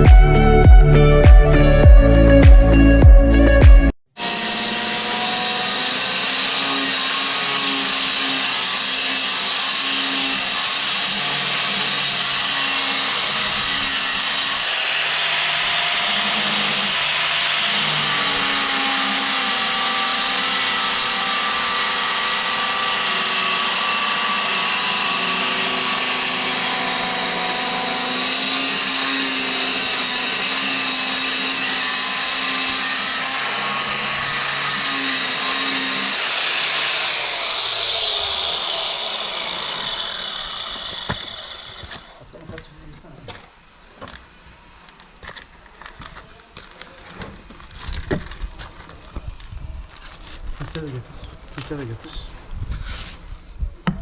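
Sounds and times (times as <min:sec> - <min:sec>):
power tool motor running: 0:04.2 - 0:42.4.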